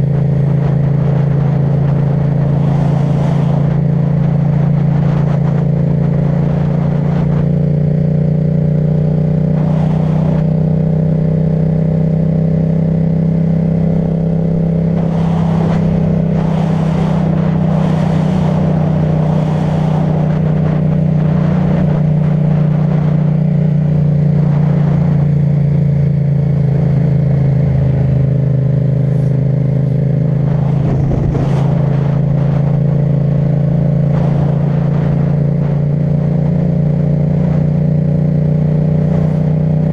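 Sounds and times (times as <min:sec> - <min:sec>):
motorcycle engine running: 0:00.0 - 0:39.9
wind gusts on microphone: 0:00.0 - 0:39.9.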